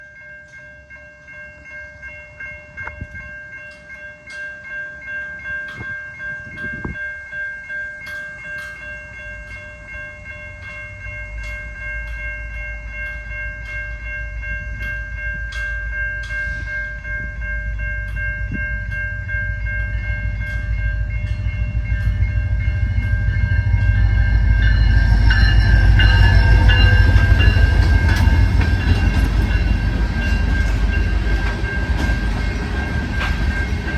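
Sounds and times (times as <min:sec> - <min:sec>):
steady high tones: 0:02.4 - 0:33.9
diesel locomotive engine rumble: 0:09.8 - 0:33.9.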